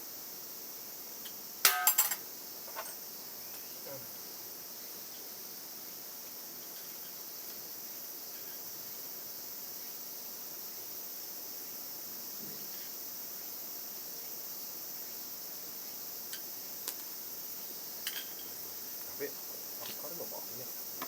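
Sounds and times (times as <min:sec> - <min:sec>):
insects chirring: 0:00.0 - 0:21.0
sharp metallic clinks: 0:01.6 - 0:03.0.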